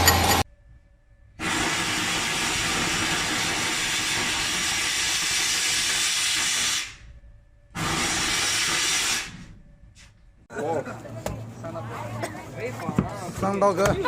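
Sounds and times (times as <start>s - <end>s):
machine running: 0.0s - 9.8s.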